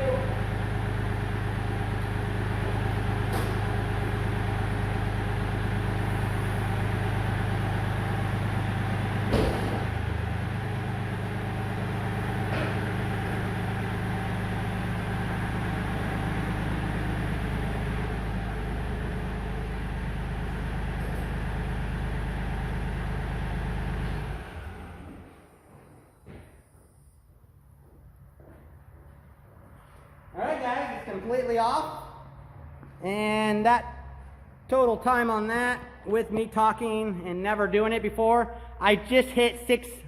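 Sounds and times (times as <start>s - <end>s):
tractor diesel engine running: 0.0s - 26.2s
sharp metallic clunk: 9.3s - 9.9s.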